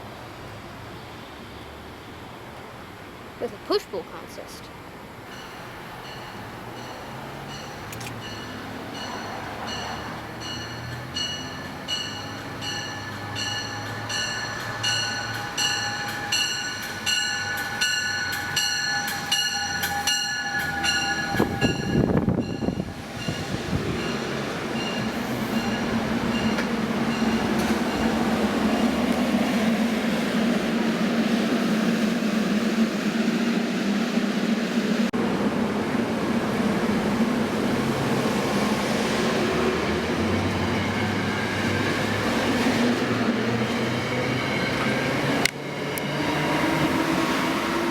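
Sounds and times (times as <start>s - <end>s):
train rumble: 5.2s - 47.9s
train bell ringing: 5.3s - 29.1s, 40.1s - 42.3s, 43.2s - 45.5s.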